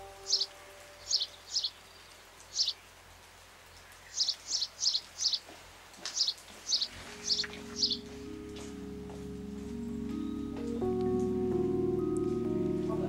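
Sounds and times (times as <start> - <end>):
small bird chirping: 0.0 - 3.0, 3.7 - 8.2.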